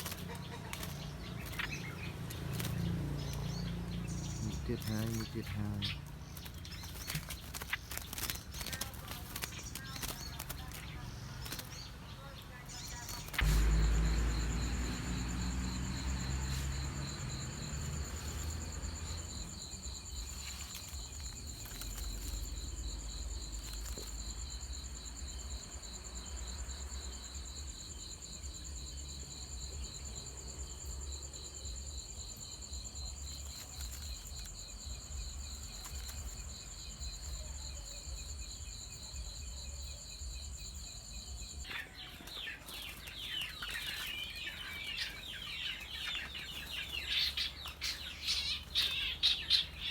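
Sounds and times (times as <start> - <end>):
birds chirping: 0.0 - 49.9
insects trilling: 0.0 - 49.9
low rumble: 13.3 - 20.4.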